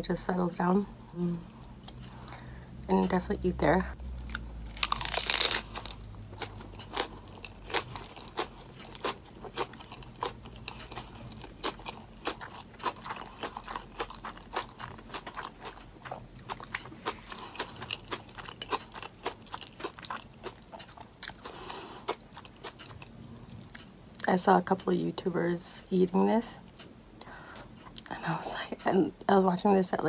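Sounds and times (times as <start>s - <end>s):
crunchy chewing: 4.0s - 24.3s.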